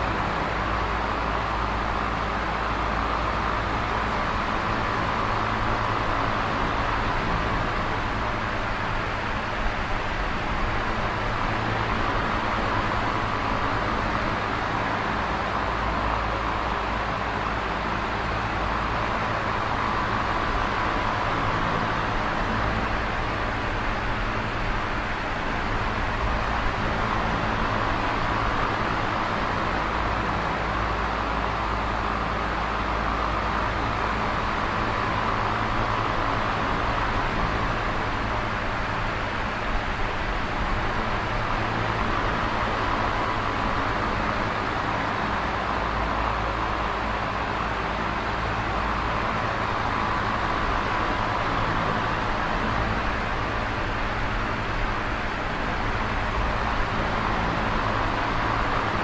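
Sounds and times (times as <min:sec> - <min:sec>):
electric fan running: 0:00.0 - 0:59.0.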